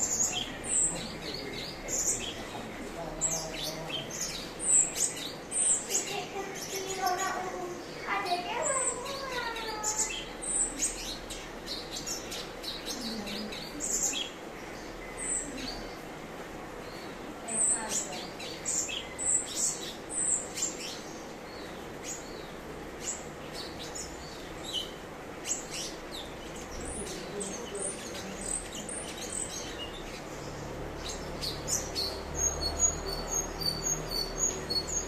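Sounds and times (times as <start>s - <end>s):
bird chirping and whistling: 32.0s - 35.0s.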